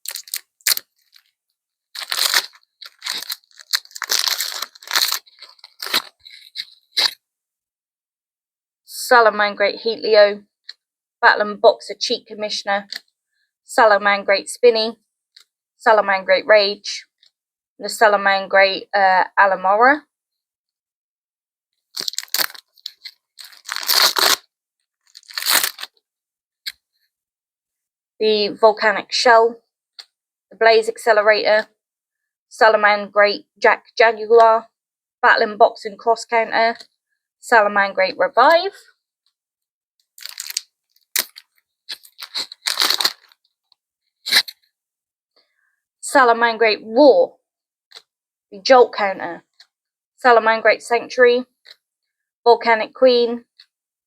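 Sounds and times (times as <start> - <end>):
foil wrapper crinkling and tearing: 0.0 - 1.3, 1.9 - 7.2, 21.9 - 25.9, 40.2 - 43.4.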